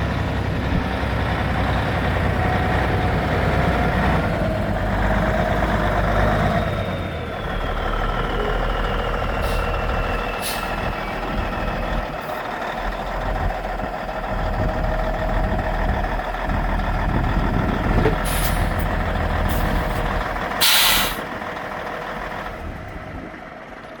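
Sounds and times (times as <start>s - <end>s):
diesel truck engine running: 0.0s - 24.0s
air brake hisses: 9.3s - 10.8s, 18.2s - 18.9s, 19.5s - 20.0s, 20.6s - 21.3s.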